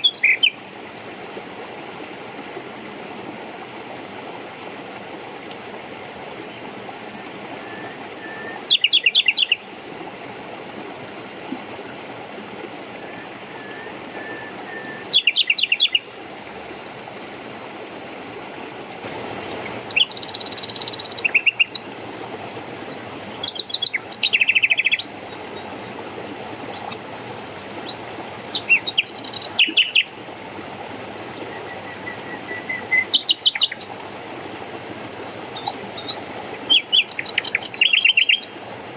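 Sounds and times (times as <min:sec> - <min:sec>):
flowing water rushing: 0:00.0 - 0:38.9
small birds chirping trills: 0:08.6 - 0:09.8, 0:15.0 - 0:16.2, 0:19.6 - 0:21.9, 0:22.9 - 0:30.2, 0:31.0 - 0:34.4, 0:35.4 - 0:38.6
faint whistled bird notes: 0:13.0 - 0:16.0.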